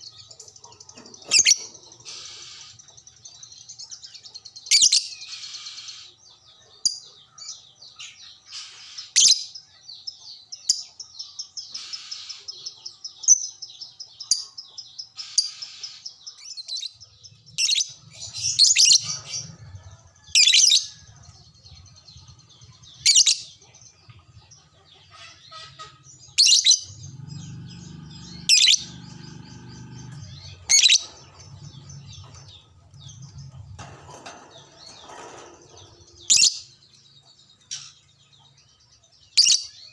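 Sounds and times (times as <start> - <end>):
lovebird chattering: 28.4 - 33.5.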